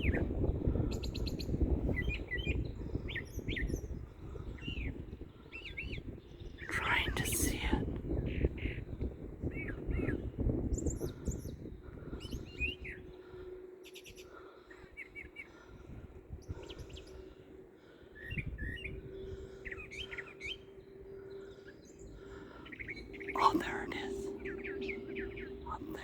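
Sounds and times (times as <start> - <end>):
songbird chirping: 0.0 - 26.0.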